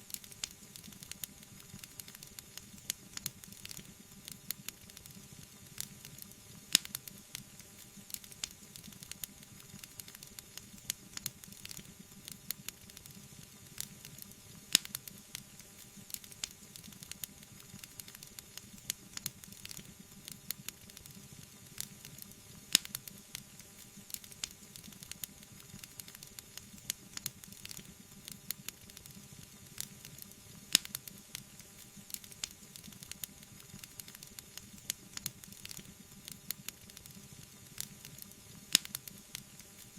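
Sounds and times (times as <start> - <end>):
wood fire crackling: 0.1 - 39.9
sharp fire pops: 22.7 - 23.1, 29.8 - 31.2, 37.8 - 39.2.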